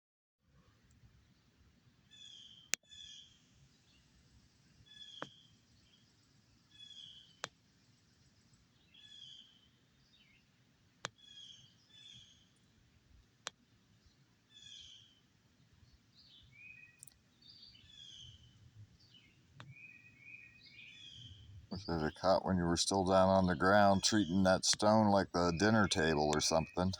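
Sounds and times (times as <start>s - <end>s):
songbird singing: 6.7s - 7.4s, 14.1s - 15.2s, 15.8s - 26.9s.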